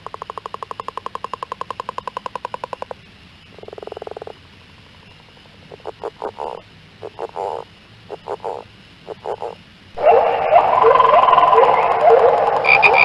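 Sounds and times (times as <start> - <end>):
frogs croaking: 0.0 - 13.0.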